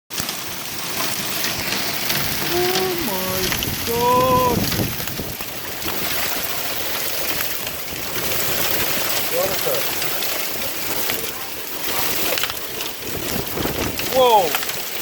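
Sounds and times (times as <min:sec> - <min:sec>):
heavy rain falling: 0:00.1 - 0:15.0
person calling out: 0:02.4 - 0:04.7.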